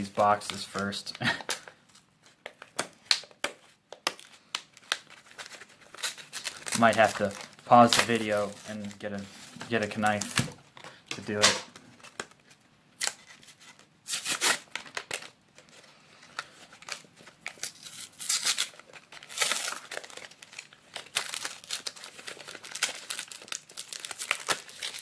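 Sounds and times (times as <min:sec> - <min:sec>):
packaging crinkling and tearing: 0:00.0 - 0:25.0.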